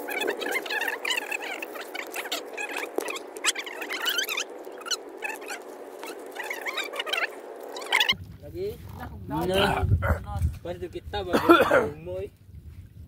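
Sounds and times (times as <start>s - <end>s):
birds chirping squeakily: 0.0s - 8.2s
steady low hum: 0.0s - 13.0s.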